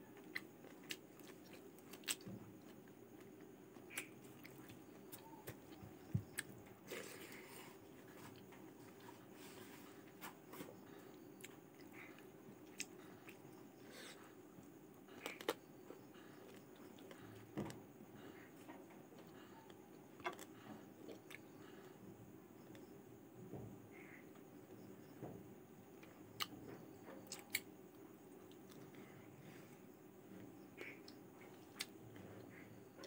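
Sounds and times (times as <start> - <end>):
faint steady hum: 0.0 - 33.0
person chewing: 0.2 - 7.7, 11.4 - 14.2.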